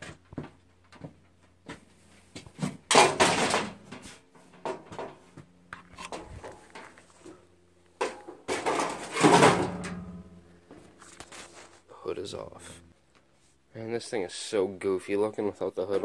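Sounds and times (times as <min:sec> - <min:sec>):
knocks and clattering: 0:02.5 - 0:05.2, 0:08.0 - 0:10.4.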